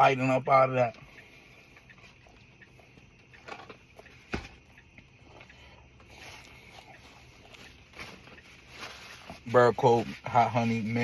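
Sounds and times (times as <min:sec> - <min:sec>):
person chewing food: 0:01.2 - 0:09.4.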